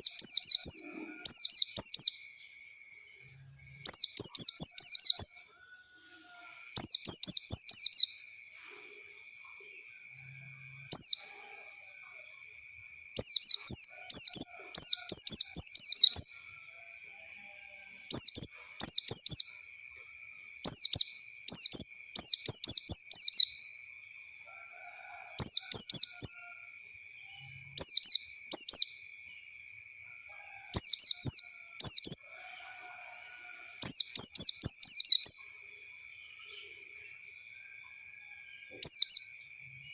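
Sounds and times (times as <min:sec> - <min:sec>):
bird twittering song: 0:00.0 - 0:05.7, 0:06.7 - 0:08.4, 0:09.4 - 0:11.5, 0:13.1 - 0:16.6, 0:18.0 - 0:23.8, 0:25.4 - 0:26.6, 0:27.2 - 0:29.1, 0:30.0 - 0:32.9, 0:33.8 - 0:37.2, 0:38.7 - 0:39.9.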